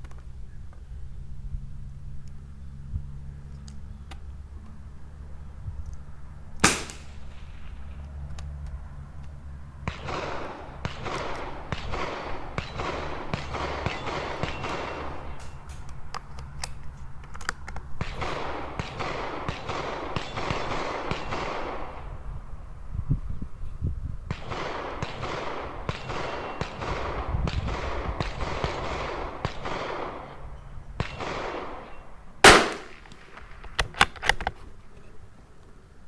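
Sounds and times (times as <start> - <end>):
rifle shot: 6.6 - 8.3, 9.8 - 22.6, 24.3 - 34.5.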